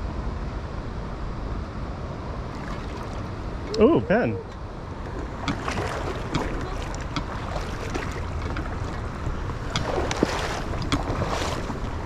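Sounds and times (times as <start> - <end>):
river current rushing: 2.4 - 12.0.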